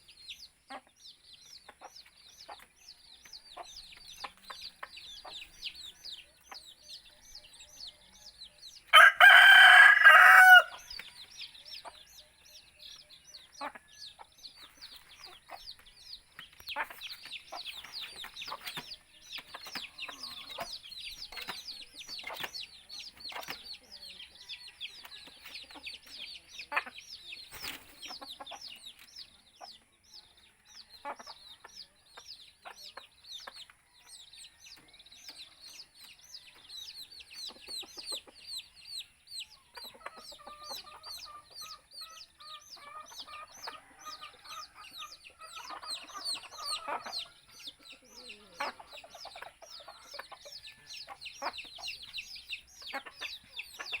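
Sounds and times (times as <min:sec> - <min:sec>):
chickens clucking and calling: 0:00.0 - 0:54.0.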